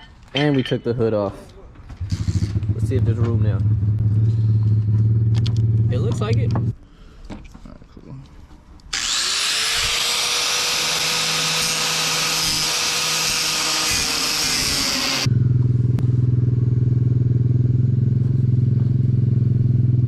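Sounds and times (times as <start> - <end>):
circular saw cutting metal: 8.9 - 15.3
engine idling: 15.2 - 20.0.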